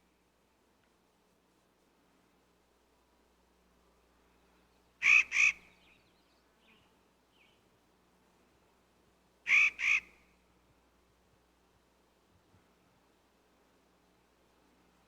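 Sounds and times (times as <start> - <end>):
bird harsh rasping call: 5.0 - 5.8, 9.5 - 10.2.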